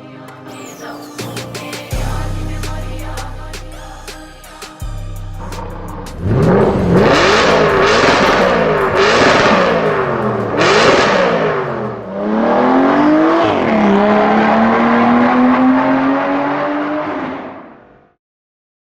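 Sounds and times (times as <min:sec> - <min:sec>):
supercar engine revving: 0:04.9 - 0:17.7.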